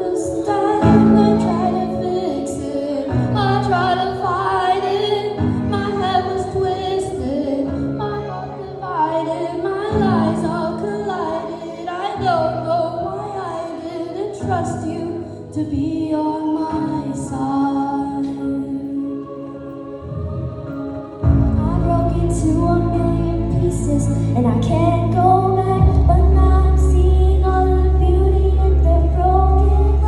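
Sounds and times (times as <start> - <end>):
woman singing: 0.0 - 30.0
sustained chords: 18.9 - 30.0.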